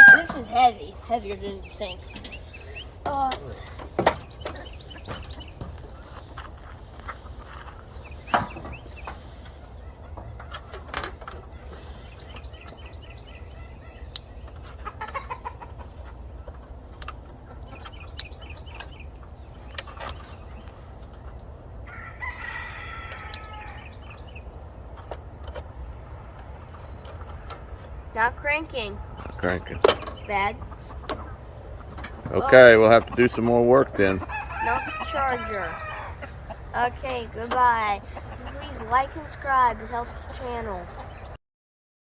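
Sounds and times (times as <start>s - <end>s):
rooster crowing: 0.0s - 0.4s, 21.8s - 24.0s, 34.0s - 36.3s
chickens clucking: 0.0s - 41.4s.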